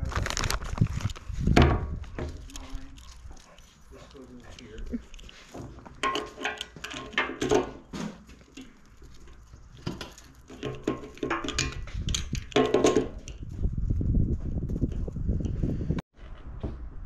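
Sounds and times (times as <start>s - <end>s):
metal parts clinking and rattling: 4.5s - 7.8s.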